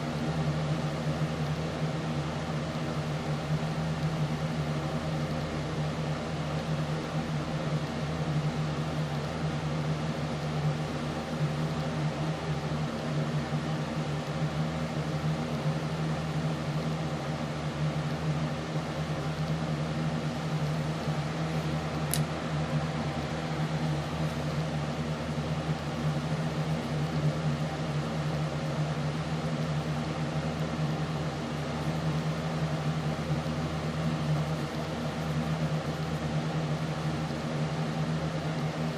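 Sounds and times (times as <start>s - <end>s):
steady mechanical hum: 0.0s - 38.9s
sharp click: 22.1s - 22.3s.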